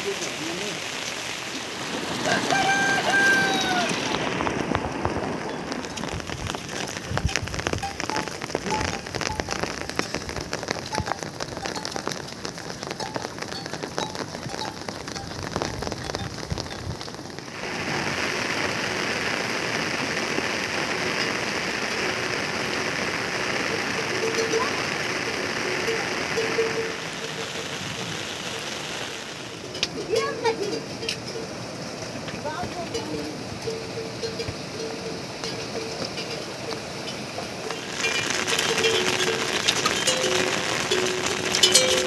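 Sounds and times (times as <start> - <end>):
rain falling: 0.0 - 42.0
raindrops ticking on a surface: 0.0 - 42.0
short pitched call: 2.3 - 4.1.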